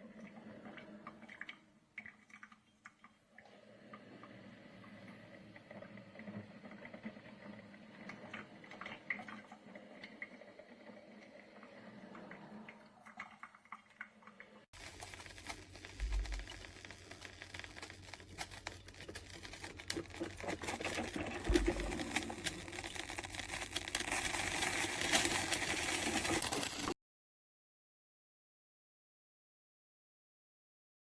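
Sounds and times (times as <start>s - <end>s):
coffee maker sputtering clicks: 14.8s - 26.9s
coffee maker hiss: 14.8s - 27.0s.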